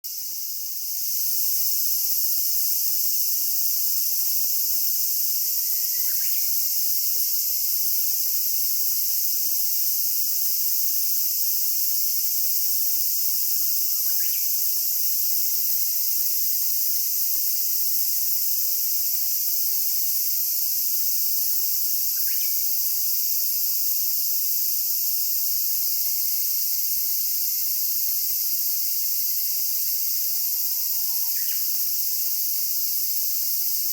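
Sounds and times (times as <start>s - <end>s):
cicadas droning: 0.1s - 33.9s
bird singing: 30.6s - 31.7s.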